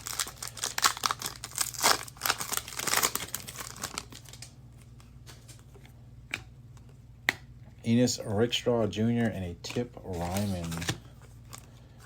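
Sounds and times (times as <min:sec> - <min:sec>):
plastic wrapper crinkling and tearing: 0:00.0 - 0:04.6, 0:10.2 - 0:11.8.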